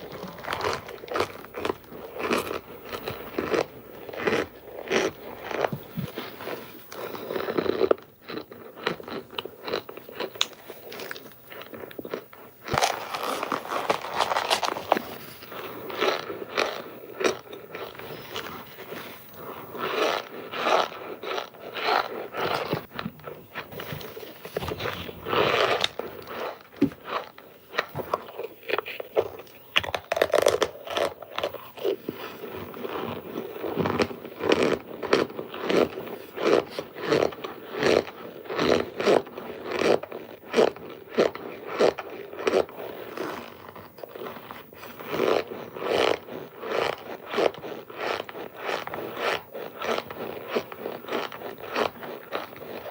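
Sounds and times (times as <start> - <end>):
cornstarch bricks crunching: 0.0 - 38.0.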